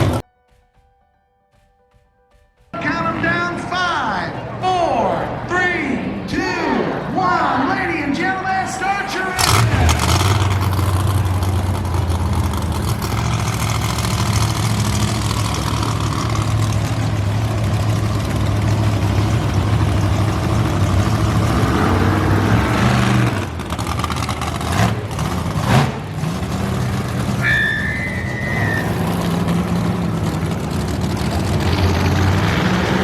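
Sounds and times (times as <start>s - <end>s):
monster truck engines idling: 0.0s - 0.2s, 2.8s - 33.0s.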